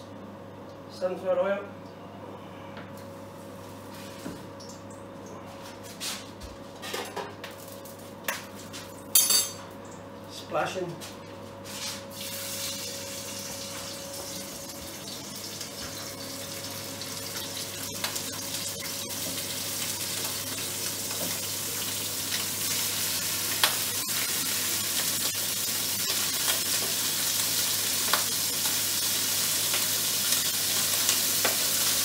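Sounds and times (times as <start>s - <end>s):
chicken frying in oil: 12.1s - 32.0s.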